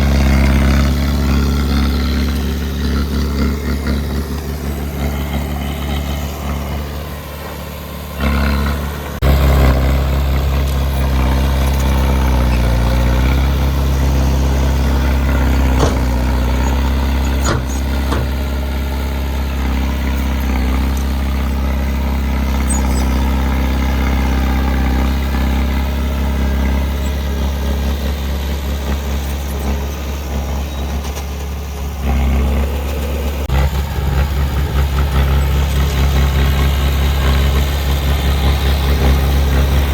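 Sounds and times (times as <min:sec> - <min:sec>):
heavy diesel engine running: 0:00.0 - 0:39.9
sharp knocks: 0:15.7 - 0:18.6.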